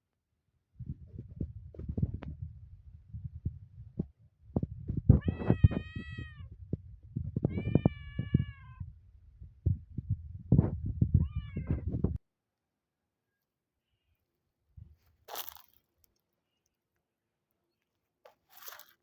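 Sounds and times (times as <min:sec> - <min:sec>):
cat meowing: 0:05.2 - 0:06.5, 0:07.5 - 0:08.8, 0:11.2 - 0:11.9.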